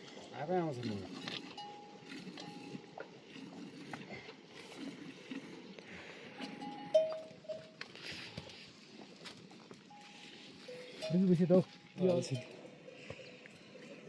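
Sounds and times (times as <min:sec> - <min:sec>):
livestock bells clinking: 0:01.0 - 0:03.0, 0:06.4 - 0:07.8, 0:09.8 - 0:14.0.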